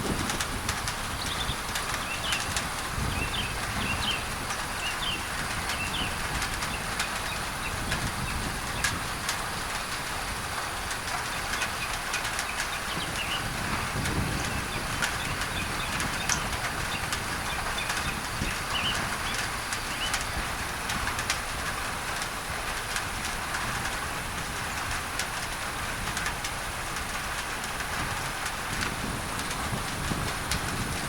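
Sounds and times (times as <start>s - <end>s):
rain on a tin roof: 0.0s - 31.0s
birds chirping: 1.1s - 8.9s, 11.2s - 20.5s.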